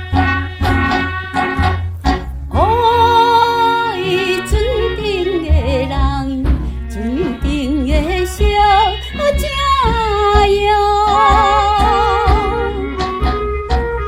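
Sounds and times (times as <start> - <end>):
band accompaniment: 0.0 - 5.4, 6.4 - 14.0
woman singing with vibrato: 2.5 - 13.2.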